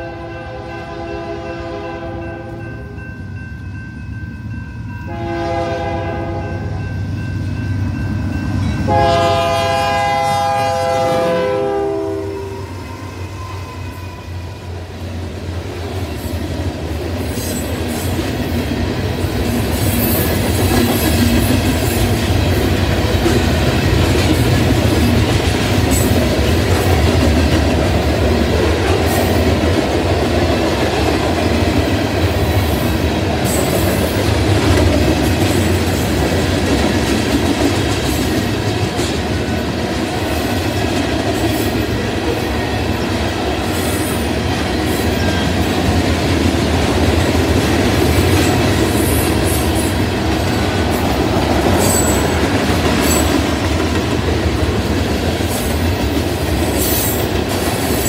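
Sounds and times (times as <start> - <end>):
locomotive air horn blasts: 0.0 - 2.6, 5.1 - 6.8, 8.9 - 12.7.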